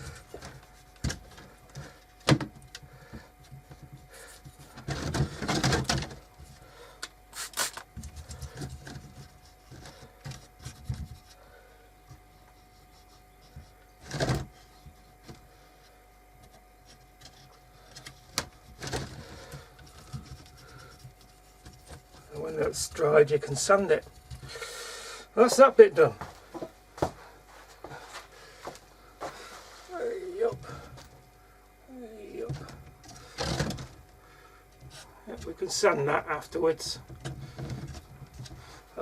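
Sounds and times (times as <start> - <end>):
faint steady hum: 0.0 - 39.0
rubbing and scraping: 7.4 - 24.7.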